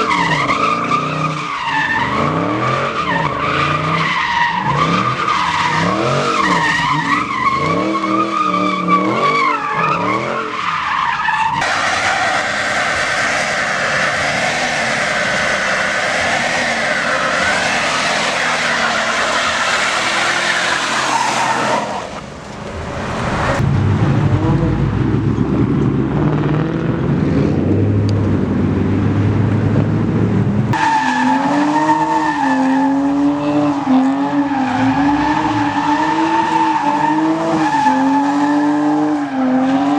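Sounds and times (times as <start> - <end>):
engines revving hard: 0.0 - 10.5, 11.6 - 22.0, 23.2 - 39.9
tyres squealing: 3.0 - 22.1.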